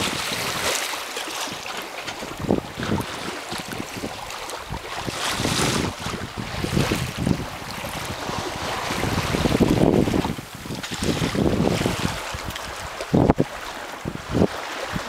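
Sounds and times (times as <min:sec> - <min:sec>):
wind buffeting microphone: 0:00.0 - 0:00.8, 0:02.0 - 0:15.0
water splashing along hull: 0:00.0 - 0:15.0.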